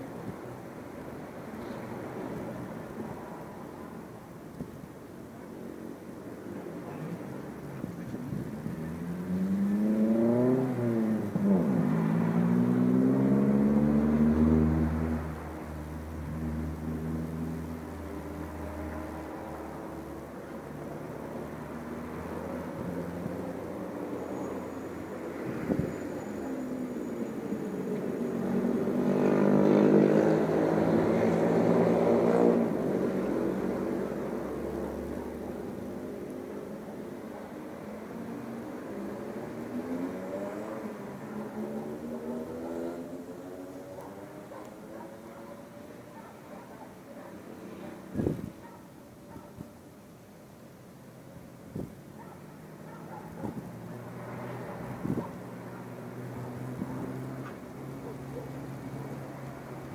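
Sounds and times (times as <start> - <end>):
engine passing by: 6.5 - 49.4, 51.8 - 59.9
vehicle engine revving: 8.7 - 15.4.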